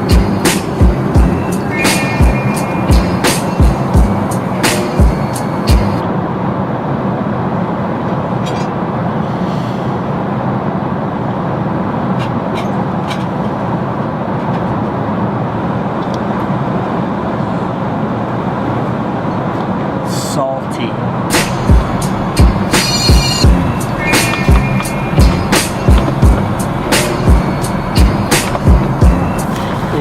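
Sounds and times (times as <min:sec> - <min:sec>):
low hum: 0:00.0 - 0:14.3, 0:21.0 - 0:30.0
airliner cabin rush: 0:00.0 - 0:30.0.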